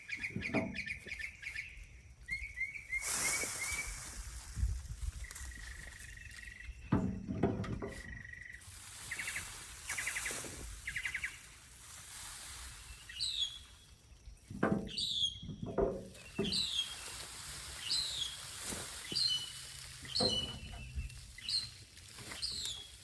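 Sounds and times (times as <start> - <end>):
birds chirping: 0.0 - 4.1, 5.2 - 7.2, 7.8 - 11.6, 12.8 - 17.2, 17.8 - 23.0
small birds trilling: 0.0 - 4.2, 7.8 - 11.6, 12.8 - 23.0.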